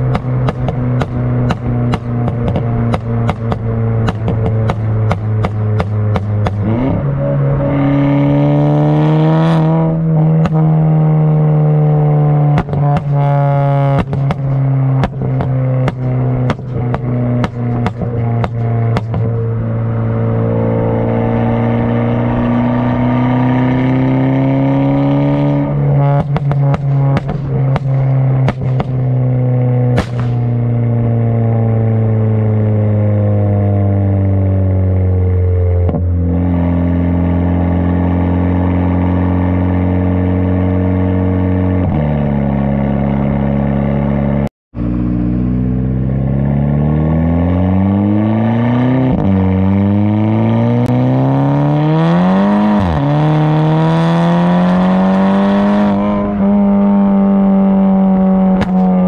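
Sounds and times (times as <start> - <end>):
exhaust pops: 0.0 - 7.0, 10.2 - 10.8, 12.4 - 19.5, 25.6 - 30.8, 58.0 - 59.0
car engine accelerating: 0.0 - 59.0.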